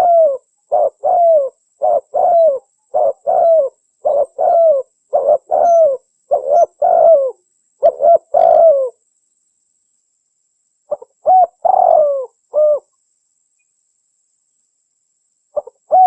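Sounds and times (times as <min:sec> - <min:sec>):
dove cooing: 0:00.0 - 0:09.0, 0:10.9 - 0:12.9, 0:15.6 - 0:16.0.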